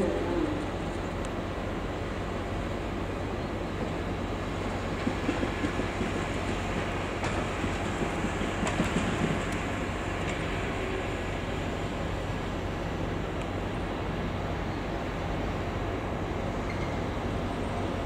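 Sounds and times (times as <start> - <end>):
train humming: 0.0 - 18.0
wheels clacking over rail joints: 3.7 - 11.3.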